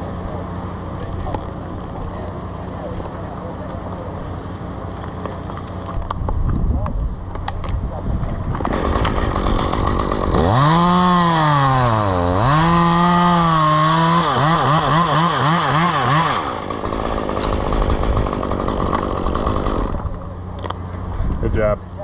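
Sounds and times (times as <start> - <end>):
chainsaw running: 8.5 - 20.8.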